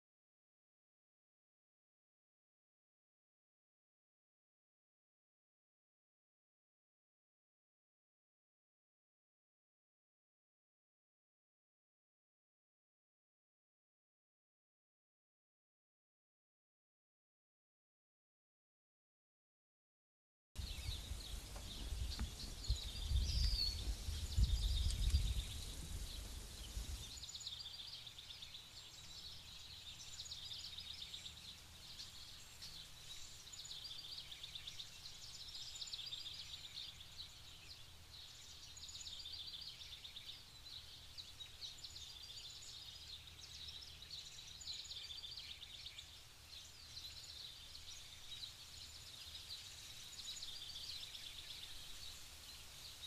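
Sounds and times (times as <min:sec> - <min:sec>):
birds chirping and trilling: 0:20.6 - 0:53.0.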